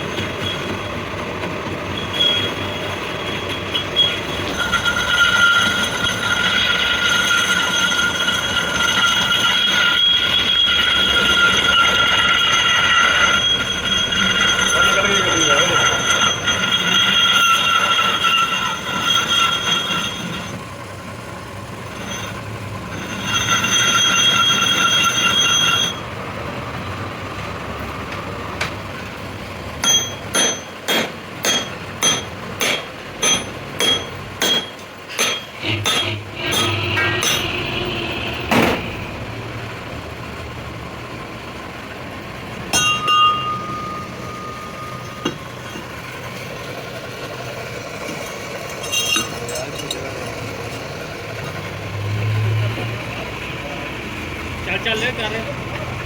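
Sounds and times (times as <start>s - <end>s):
lathe cutting tool squealing: 0.0s - 28.3s, 29.8s - 39.7s, 42.5s - 56.0s
ringing metal clinks: 29.8s - 36.0s, 42.7s - 45.9s, 48.2s - 50.4s.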